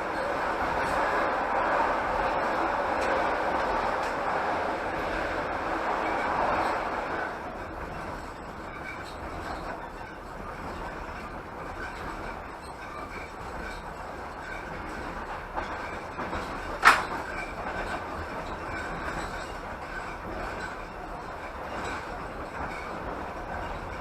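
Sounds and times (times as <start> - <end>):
train wheels rumbling on rails: 0.0 - 24.0
sharp loud clack: 16.8 - 17.2.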